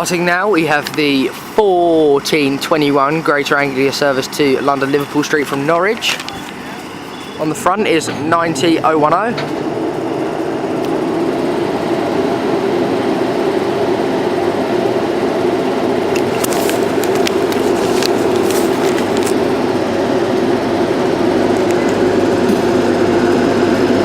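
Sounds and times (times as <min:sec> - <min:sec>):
train running rumble: 0:05.5 - 0:23.9.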